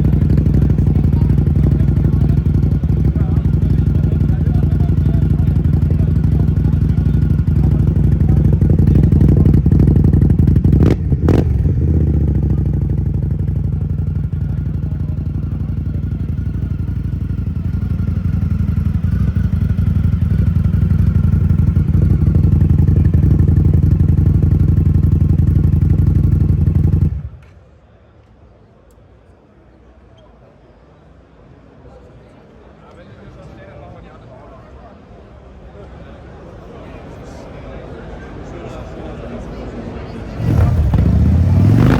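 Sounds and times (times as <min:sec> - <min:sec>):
motorcycle engine idling: 0:00.0 - 0:27.4, 0:40.4 - 0:41.9.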